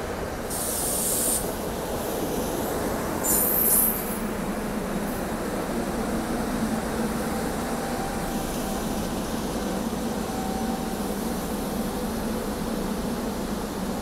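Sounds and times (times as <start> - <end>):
electric train humming: 3.9 - 14.0.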